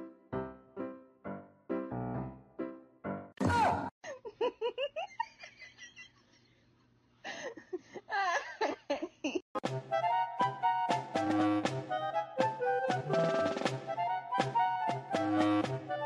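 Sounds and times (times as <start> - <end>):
person giggling: 4.0 - 6.3, 7.3 - 9.4
music notes: 9.6 - 16.0.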